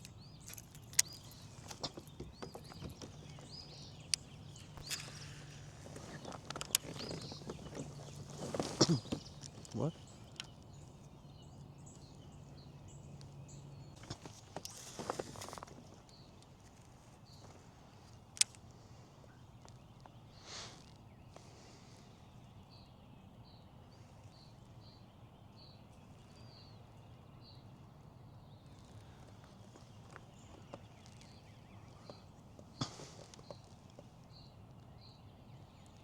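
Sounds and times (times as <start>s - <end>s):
brief rustle: 0.0s - 10.6s.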